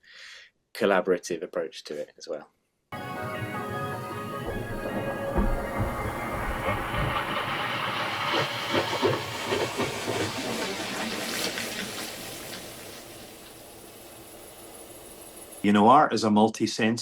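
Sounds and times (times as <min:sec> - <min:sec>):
dense wash of electronic noise: 0:03.0 - 0:15.6.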